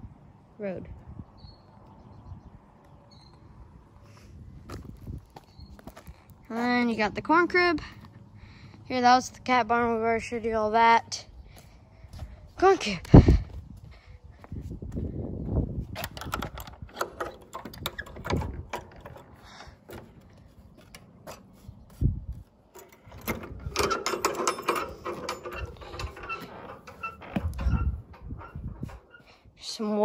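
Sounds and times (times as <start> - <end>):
sharp metallic clicks and rattles: 15.9 - 21.5, 22.7 - 29.2.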